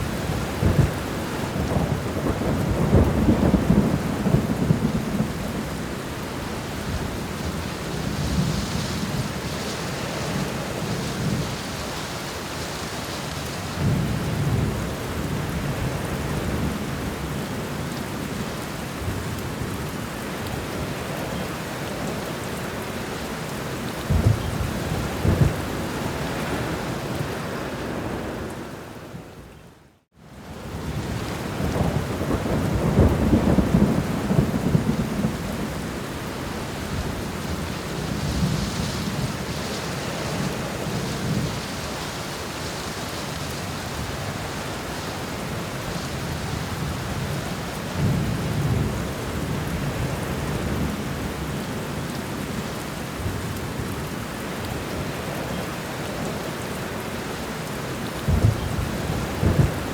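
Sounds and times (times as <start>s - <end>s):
thunder rumbling: 0.0s - 5.9s, 24.0s - 27.2s, 30.9s - 41.8s, 58.2s - 59.9s
steady rain: 0.0s - 59.9s
sharp thunder claps: 58.3s - 59.9s.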